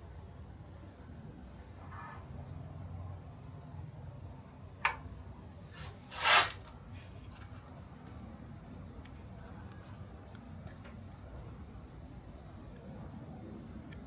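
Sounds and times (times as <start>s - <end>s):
faint handling noises: 4.8s - 11.6s.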